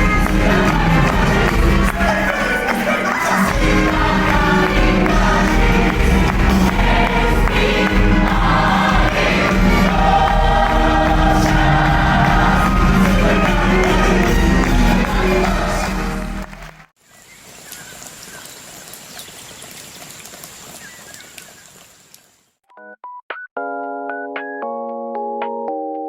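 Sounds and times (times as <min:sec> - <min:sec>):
choir singing: 0:00.0 - 0:16.6.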